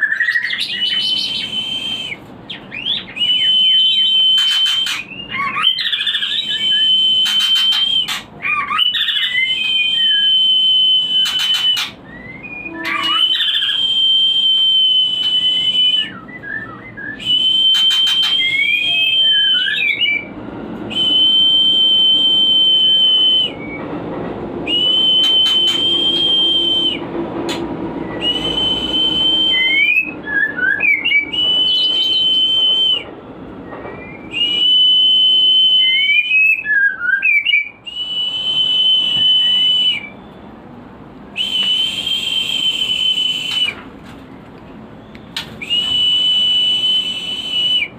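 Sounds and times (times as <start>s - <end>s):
bird whistled notes: 0.0s - 20.3s, 24.7s - 27.0s, 28.0s - 40.4s, 41.4s - 43.8s, 45.0s - 47.9s
bird chirps rising and falling: 11.2s - 15.3s.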